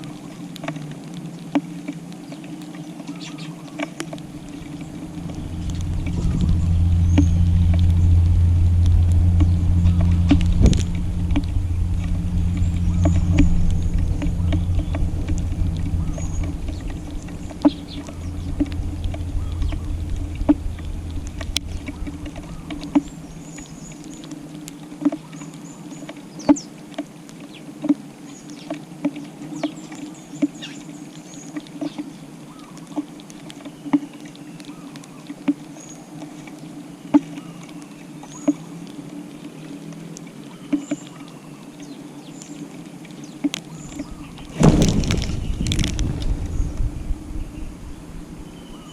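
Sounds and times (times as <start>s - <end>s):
low rumble: 4.0s - 25.0s, 43.7s - 48.9s
faint bird chirps: 43.2s - 48.9s.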